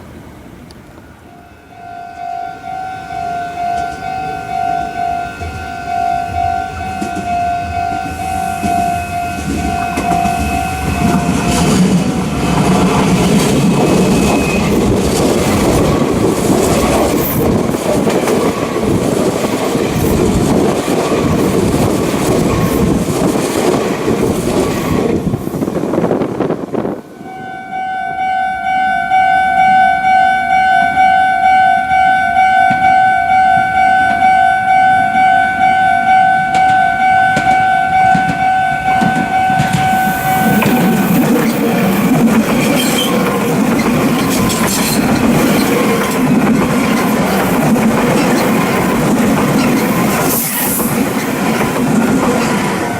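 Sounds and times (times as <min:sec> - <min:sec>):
electric train passing at speed: 0:00.0 - 0:52.9
pulsing electronic warning tone: 0:01.3 - 0:15.8, 0:27.2 - 0:46.4.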